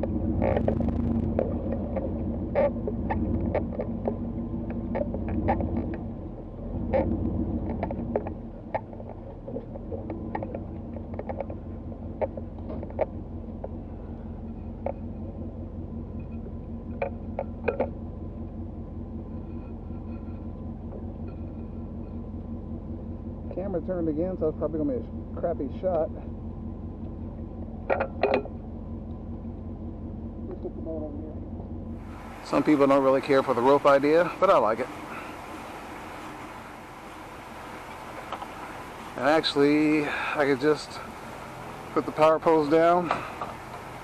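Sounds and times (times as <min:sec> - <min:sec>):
sharp clicks and knocks: 0:00.0 - 0:06.1, 0:06.8 - 0:13.8, 0:14.4 - 0:15.4, 0:16.2 - 0:18.0, 0:27.0 - 0:29.2, 0:42.0 - 0:43.9
engine idling: 0:00.0 - 0:44.0.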